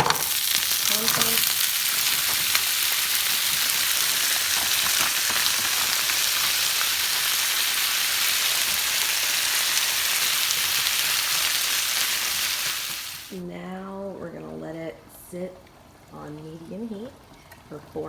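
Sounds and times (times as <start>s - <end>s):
beef sizzling in oil: 0.0s - 13.4s.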